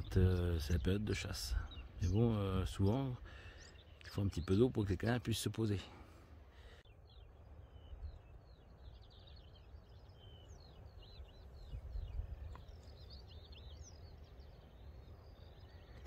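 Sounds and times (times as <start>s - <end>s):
songbird singing chirps and trills: 0.0s - 16.0s
wind rumble on microphone: 9.8s - 16.0s.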